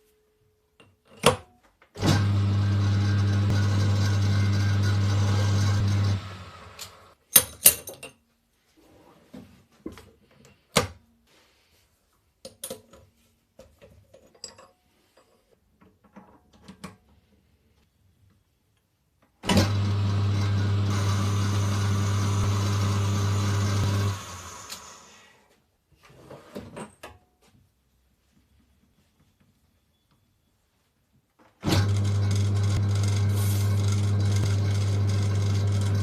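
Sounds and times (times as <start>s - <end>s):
machine humming: 2.1s - 7.1s, 19.6s - 25.0s, 31.8s - 36.0s.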